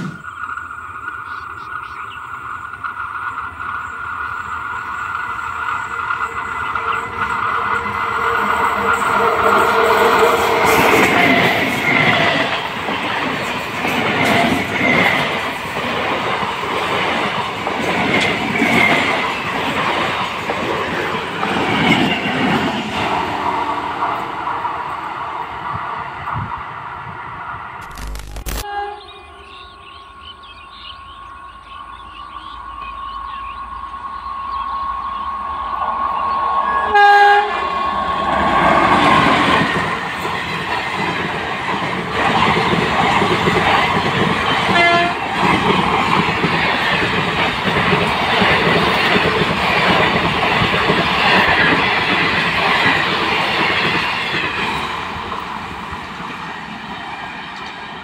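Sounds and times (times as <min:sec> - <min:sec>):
train wheels rushing over rails: 0:02.3 - 0:27.2, 0:34.1 - 0:58.0
train horn blast: 0:28.6 - 0:29.5, 0:36.7 - 0:38.7, 0:44.7 - 0:45.2.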